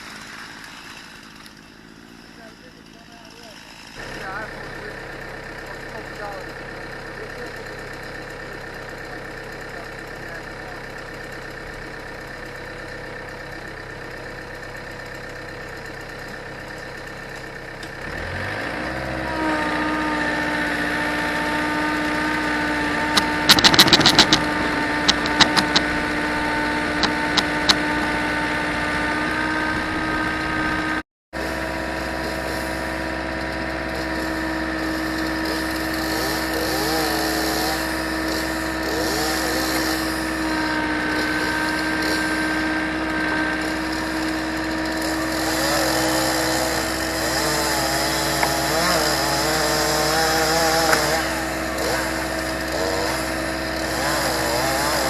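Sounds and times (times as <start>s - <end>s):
engine running: 0.0s - 55.0s
second engine starting up: 23.1s - 25.9s
sharp clicks: 23.1s - 26.0s, 27.0s - 27.8s.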